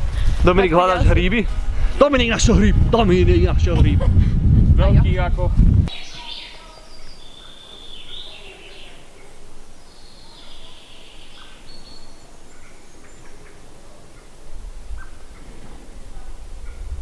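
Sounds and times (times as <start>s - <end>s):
wind rumble on microphone: 0.0s - 6.4s, 14.4s - 17.0s
birds singing: 5.9s - 17.0s.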